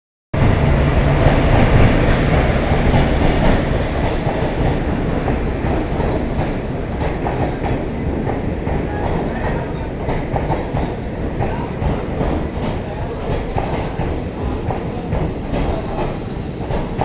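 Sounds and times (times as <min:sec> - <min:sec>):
train wheels rumbling on rails: 0:00.4 - 0:17.0
rail-joint clicks: 0:01.2 - 0:17.0
high wheel squeal: 0:03.6 - 0:04.2.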